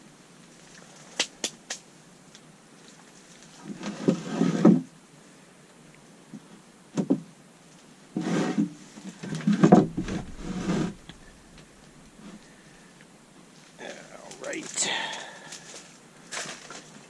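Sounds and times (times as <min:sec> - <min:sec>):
wood scraping: 0:09.4 - 0:12.8.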